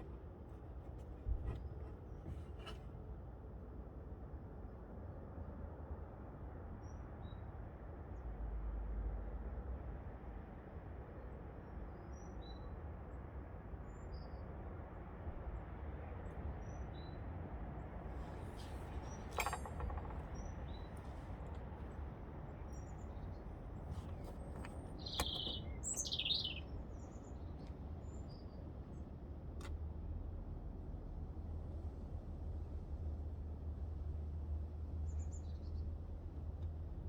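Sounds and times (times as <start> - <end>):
birds chirping: 18.6 - 28.6.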